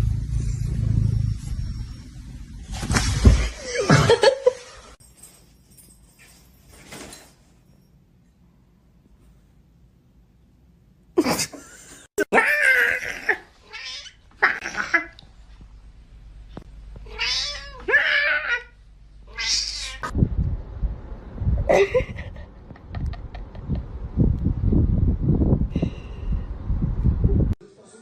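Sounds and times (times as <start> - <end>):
low rumbling with thumps: 0.0 - 3.7, 20.0 - 27.6
cat yowling and meowing: 12.4 - 15.0, 17.0 - 20.1.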